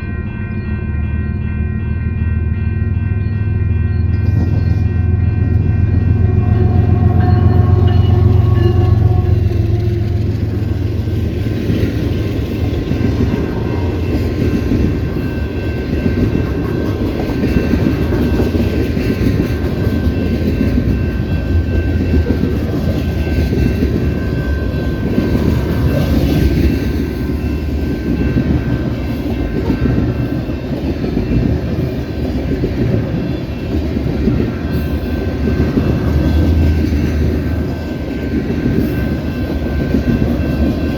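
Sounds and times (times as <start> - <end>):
train horn tones: 4.2 - 11.0.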